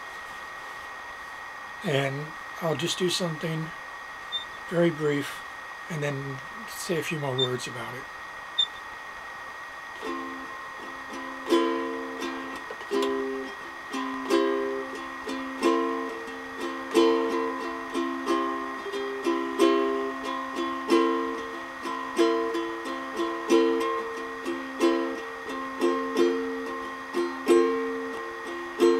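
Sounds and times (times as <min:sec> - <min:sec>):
ukulele chords strummed: 0:10.0 - 0:28.9.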